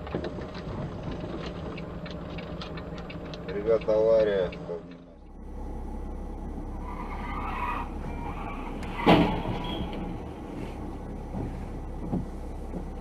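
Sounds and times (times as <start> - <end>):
car engine and road hum: 0.0 - 13.0
loud bang: 8.9 - 10.0.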